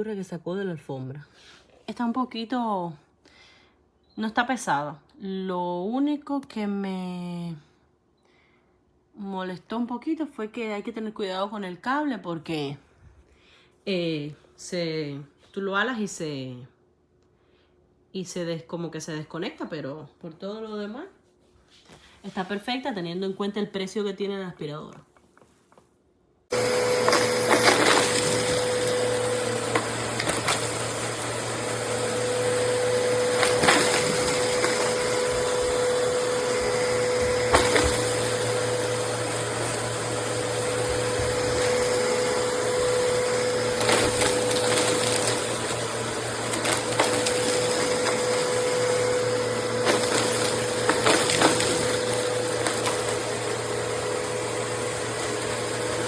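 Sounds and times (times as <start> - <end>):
vacuum cleaner humming: 26.5 - 56.0.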